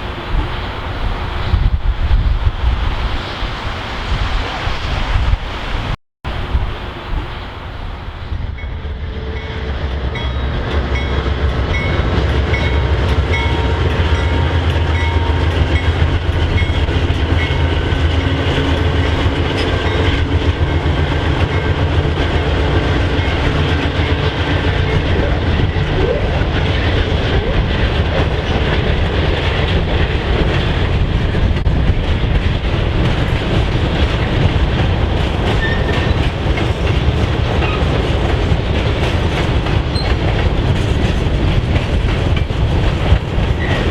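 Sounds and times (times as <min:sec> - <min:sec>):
train rumbling past: 0:00.0 - 0:43.9
wheels clacking over rail joints: 0:09.3 - 0:43.9.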